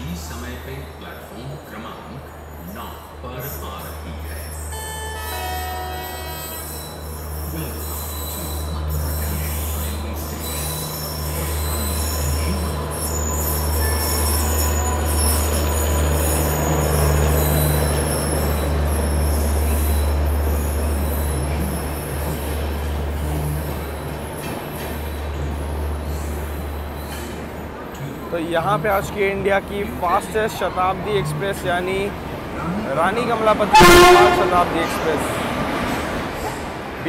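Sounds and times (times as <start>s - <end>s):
electric locomotive hum: 0.0s - 37.0s
train wheels rumbling: 0.0s - 37.0s
high wheel squeal on rails: 2.3s - 28.3s, 32.1s - 37.0s.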